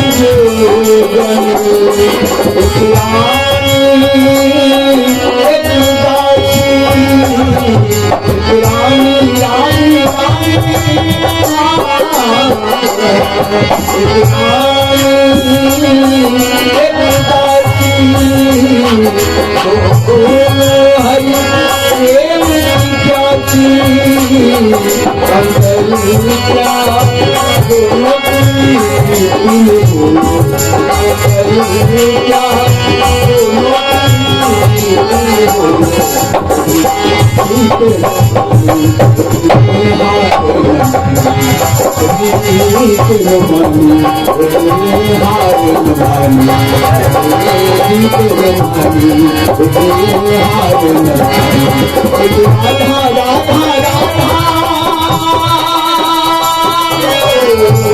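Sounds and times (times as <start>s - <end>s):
tabla drum rhythm: 0.0s - 57.9s.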